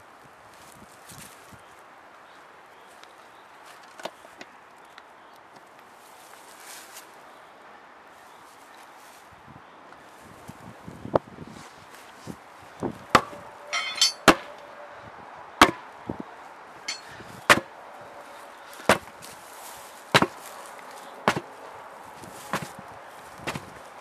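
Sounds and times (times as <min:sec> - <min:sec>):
hard hammer-like blows: 0:13.2 - 0:14.6, 0:15.6 - 0:15.8, 0:16.9 - 0:17.7, 0:20.2 - 0:20.4, 0:21.3 - 0:21.5
short metallic ringing: 0:13.7 - 0:14.4, 0:16.9 - 0:17.2.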